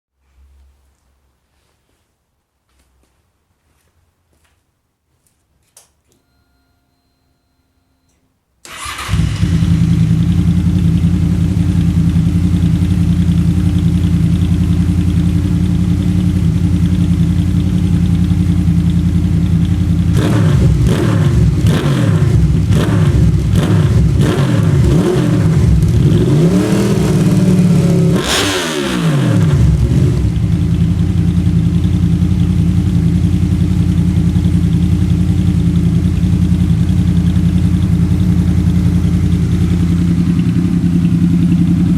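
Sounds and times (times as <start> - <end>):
motorcycle engine idling and revving: 8.7 - 41.9.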